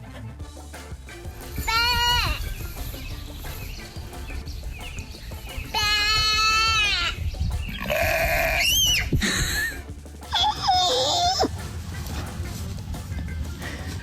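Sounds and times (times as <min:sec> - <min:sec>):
goat bleating loudly: 0:01.6 - 0:02.4, 0:07.8 - 0:09.0.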